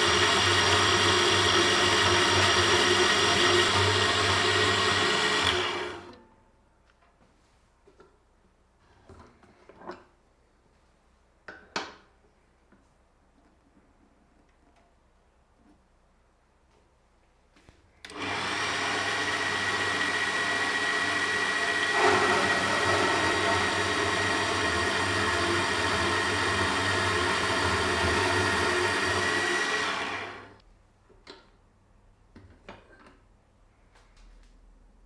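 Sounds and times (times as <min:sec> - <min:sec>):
power tool motor whining: 0:00.0 - 0:06.2, 0:18.1 - 0:30.6.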